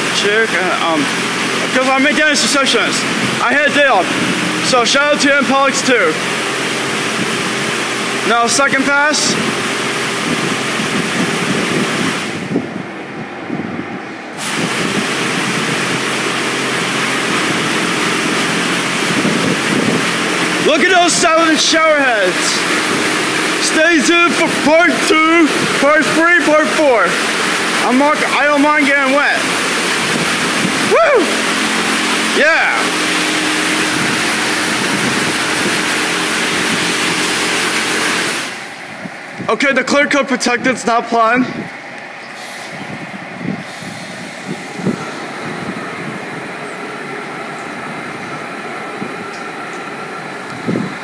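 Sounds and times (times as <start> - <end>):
high-pressure water spray hissing: 0.0 - 12.6, 14.3 - 39.4, 42.3 - 43.0, 43.6 - 51.0
low machine hum: 0.0 - 51.0.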